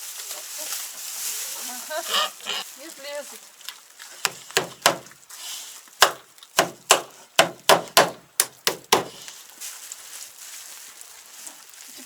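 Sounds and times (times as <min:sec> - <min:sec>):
sharp blows on wood: 0:04.2 - 0:05.1, 0:06.0 - 0:09.3.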